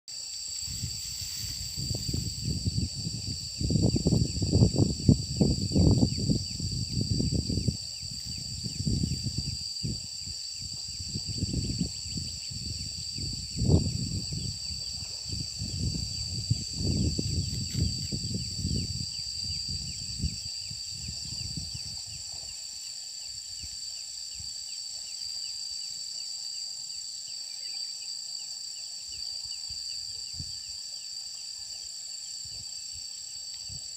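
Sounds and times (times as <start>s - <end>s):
insects trilling: 0.1s - 33.9s.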